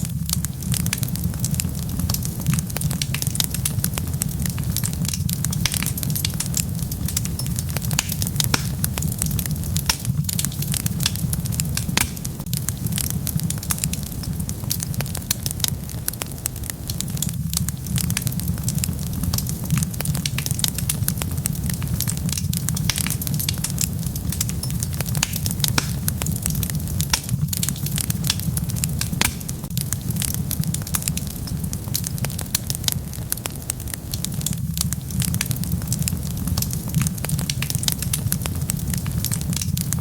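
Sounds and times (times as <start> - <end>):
wood fire crackling: 0.0 - 40.0.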